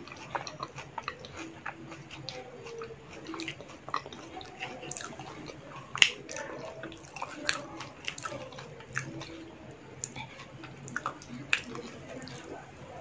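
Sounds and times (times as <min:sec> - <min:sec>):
close chewing with wet mouth clicks: 0:00.0 - 0:13.0.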